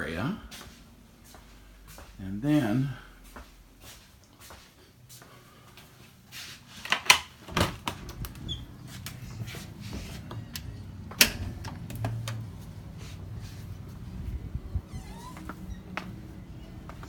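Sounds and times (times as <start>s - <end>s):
steady low hum: 7.8s - 17.0s.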